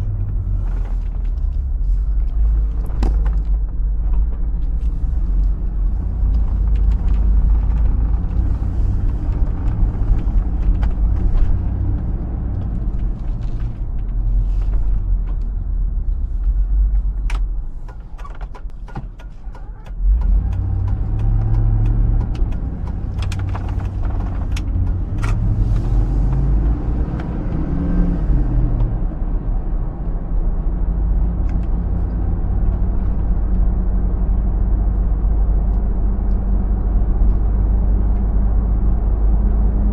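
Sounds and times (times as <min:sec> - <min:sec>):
engine and road rumble: 0:00.0 - 0:39.9.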